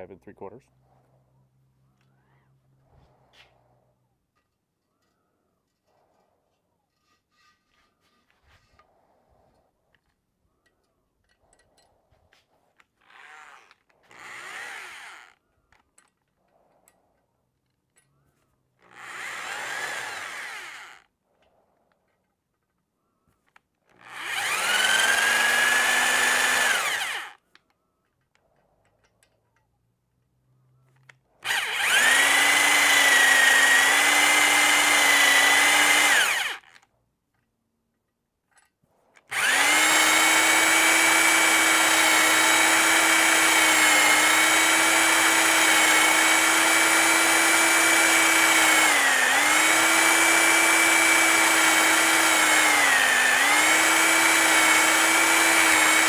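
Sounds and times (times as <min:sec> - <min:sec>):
electric drill honing cylinder: 0:13.1 - 0:15.4, 0:18.8 - 0:21.0, 0:24.0 - 0:27.4, 0:31.4 - 0:36.8, 0:39.3 - 0:56.0.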